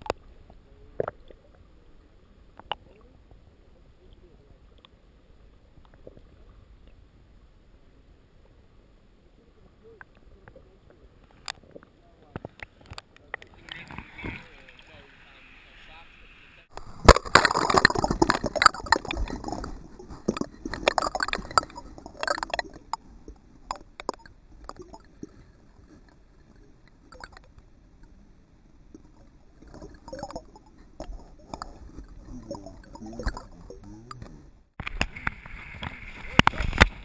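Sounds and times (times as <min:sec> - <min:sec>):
water splashing and sloshing: 0:10.1 - 0:37.0
water dripping: 0:16.7 - 0:28.1, 0:28.9 - 0:37.0.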